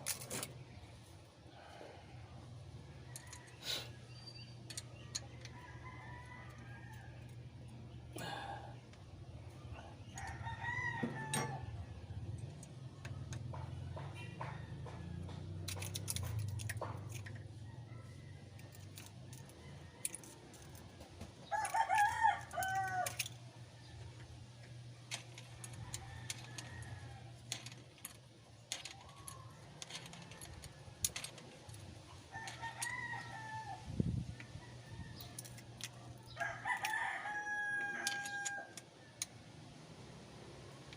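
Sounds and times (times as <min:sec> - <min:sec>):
rooster crowing: 0:05.2 - 0:07.4, 0:09.7 - 0:11.8, 0:17.6 - 0:23.4, 0:32.3 - 0:39.3.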